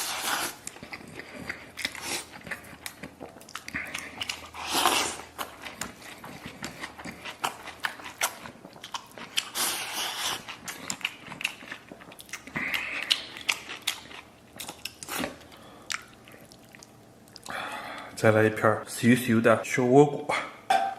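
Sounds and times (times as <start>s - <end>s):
person chewing meat: 0.0s - 18.1s.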